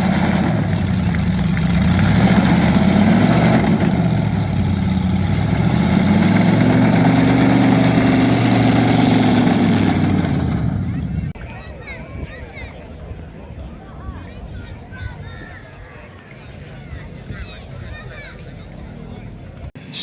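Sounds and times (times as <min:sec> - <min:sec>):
car engine running loud: 0:00.0 - 0:11.4.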